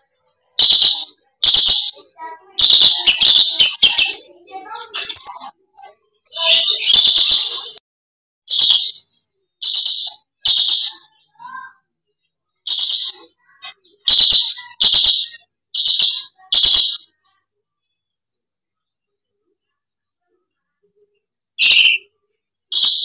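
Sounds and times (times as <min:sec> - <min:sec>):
parrots screeching: 0:00.6 - 0:07.8, 0:08.5 - 0:09.0, 0:09.6 - 0:11.7, 0:12.7 - 0:17.1, 0:21.6 - 0:22.1, 0:22.7 - 0:23.0.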